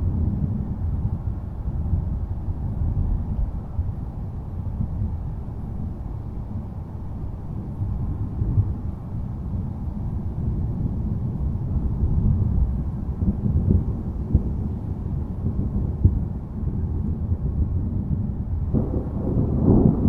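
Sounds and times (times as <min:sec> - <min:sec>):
rolling thunder: 0:11.8 - 0:20.0.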